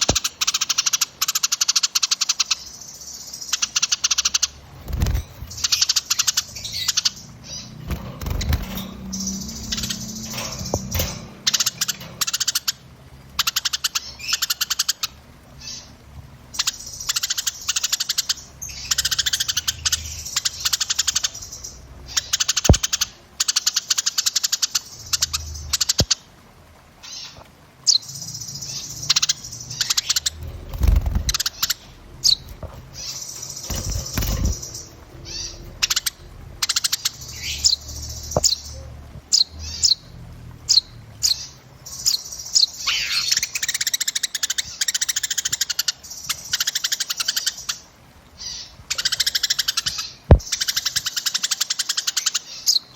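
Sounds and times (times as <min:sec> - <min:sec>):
songbirds trilling and chattering: 0:00.0 - 0:52.9.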